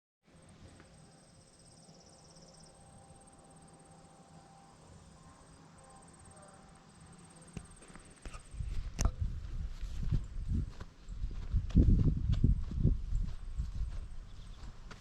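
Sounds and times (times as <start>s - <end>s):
insects chirping: 0.3s - 9.3s
low hum: 0.3s - 15.0s.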